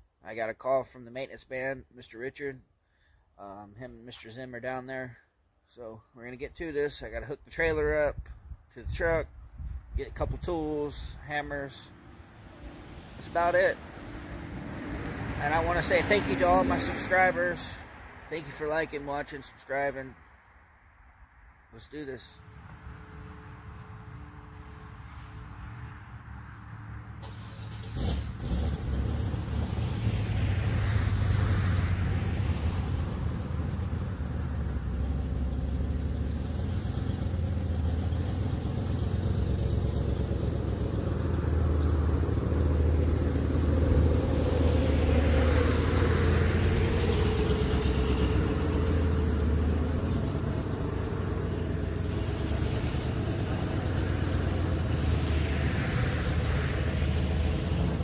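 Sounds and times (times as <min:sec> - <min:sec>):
truck engine humming: 0:27.2 - 0:58.0.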